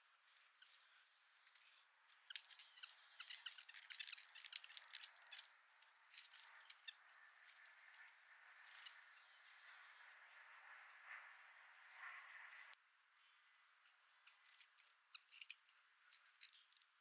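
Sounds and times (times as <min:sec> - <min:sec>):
birds pecking at feeder: 0:00.7 - 0:09.3.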